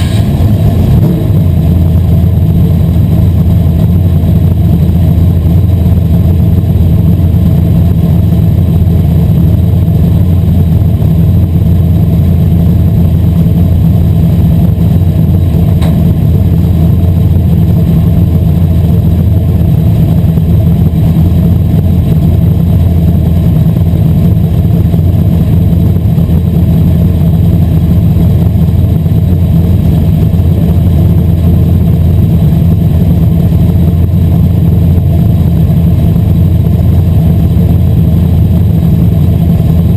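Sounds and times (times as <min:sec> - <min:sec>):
race car engine droning: 0:00.0 - 0:39.9.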